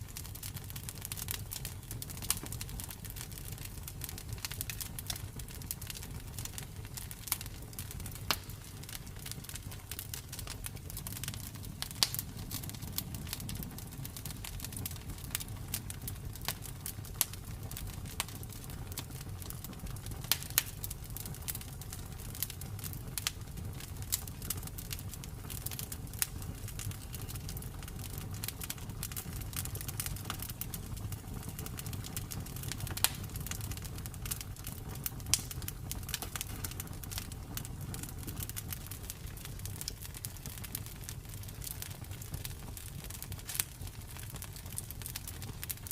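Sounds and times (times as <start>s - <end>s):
campfire wood crackling: 0.0s - 45.9s.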